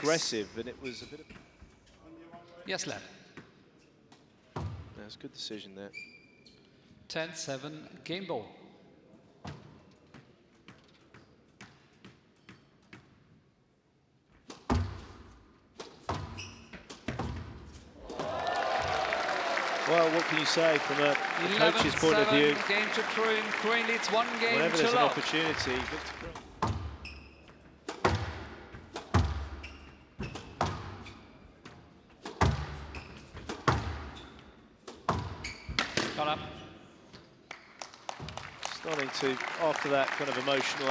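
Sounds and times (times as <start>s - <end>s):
shoes squeaking on court floor: 5.9s - 6.7s, 15.8s - 18.2s, 20.2s - 37.2s
squash ball knocks: 27.9s - 29.6s.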